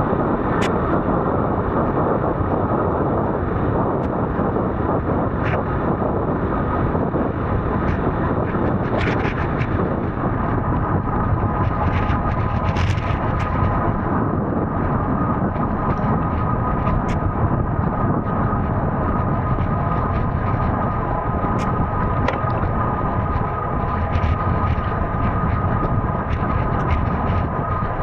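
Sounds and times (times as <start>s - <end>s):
wind buffeting microphone: 0.0s - 28.0s
faint high hum: 12.8s - 28.0s.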